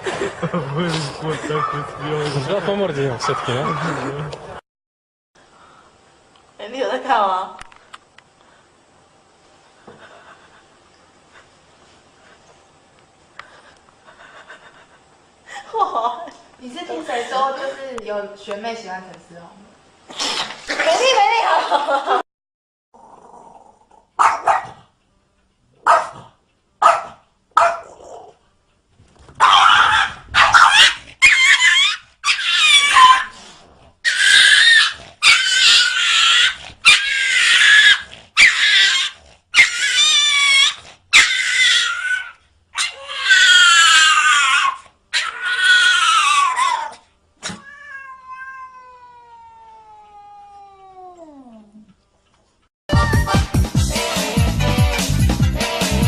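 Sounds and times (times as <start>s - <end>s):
cat yowling: 29.4s - 33.3s, 34.1s - 51.6s.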